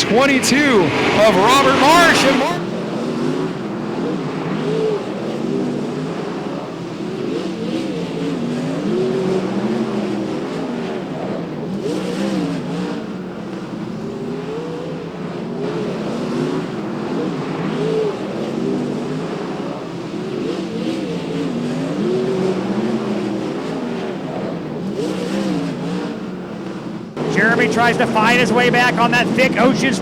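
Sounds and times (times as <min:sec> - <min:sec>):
race car engines: 0:00.0 - 0:30.0.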